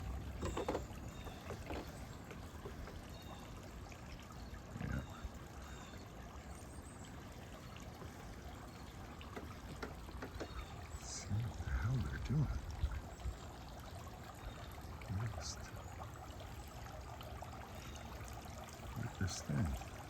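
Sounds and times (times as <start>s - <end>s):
small birds chirping: 0.0s - 20.0s
trickle of pond water: 0.0s - 20.0s.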